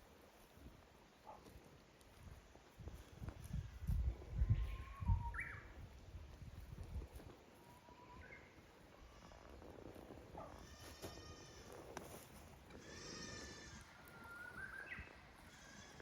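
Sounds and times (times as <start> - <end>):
thin bird whistles: 4.7 - 5.7, 14.1 - 15.2
goat bleating: 10.5 - 11.9, 12.7 - 14.2, 15.4 - 16.0.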